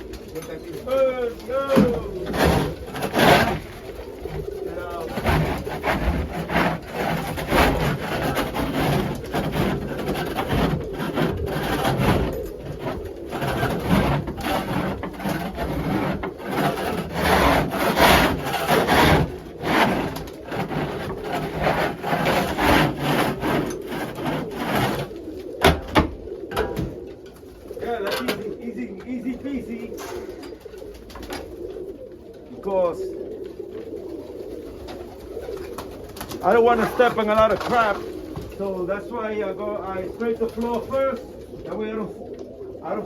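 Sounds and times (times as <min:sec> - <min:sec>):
scraper scraping floor: 0:01.8 - 0:04.0, 0:05.0 - 0:25.1.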